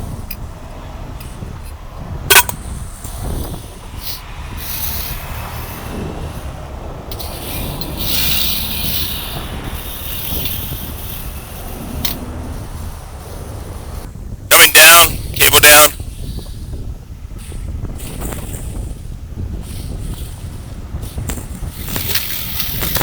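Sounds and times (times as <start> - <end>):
heavy machinery low rumble: 0.0 - 23.0
sharp loud click: 2.3 - 2.7.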